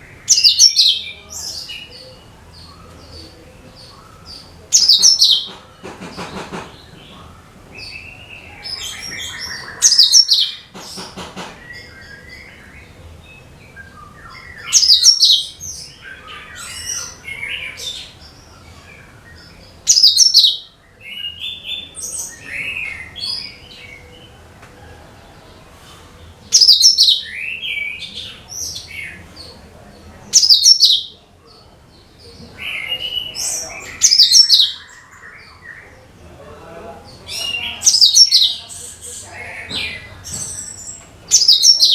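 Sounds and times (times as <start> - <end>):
bird chattering: 0.0 - 12.0, 14.4 - 18.2, 19.8 - 20.6, 26.5 - 27.3, 30.3 - 31.1, 32.6 - 34.9, 37.2 - 41.9.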